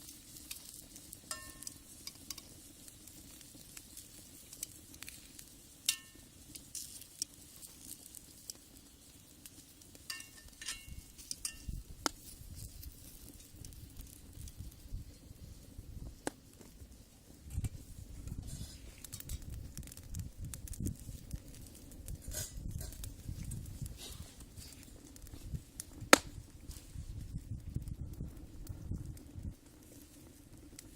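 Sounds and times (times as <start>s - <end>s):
wood fire crackling: 0.0s - 30.9s
sharp pops: 25.9s - 26.4s.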